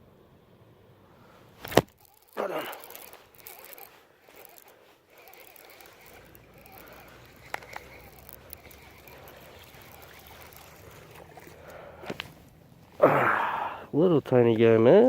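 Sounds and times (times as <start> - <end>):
sharp clicks: 1.6 - 12.4
water splashing and trickling: 4.4 - 13.2.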